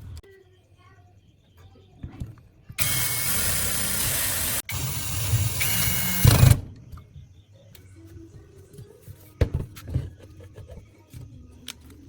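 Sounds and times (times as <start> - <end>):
power tool motor whining: 2.8 - 6.6.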